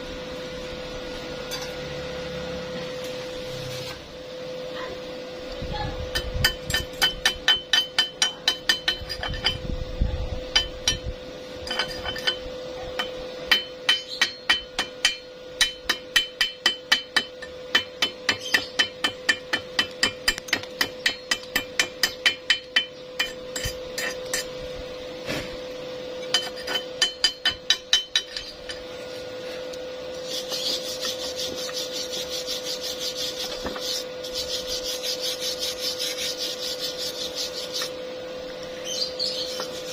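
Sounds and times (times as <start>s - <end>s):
steady hum: 0.0s - 39.9s
rhythmic rasping scrape: 10.5s - 24.6s, 30.1s - 38.0s, 39.4s - 39.9s.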